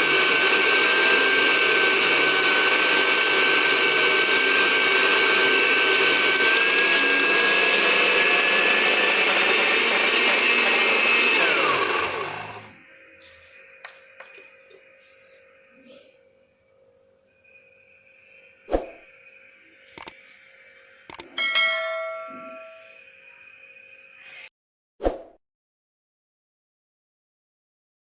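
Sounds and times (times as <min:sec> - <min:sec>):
electric blender motor whining: 0:00.0 - 0:15.7, 0:19.4 - 0:20.2.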